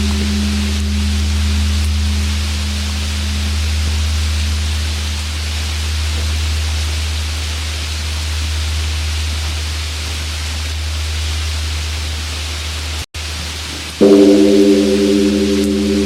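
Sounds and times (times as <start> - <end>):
temple bell humming: 0.0 - 4.9, 14.0 - 16.0.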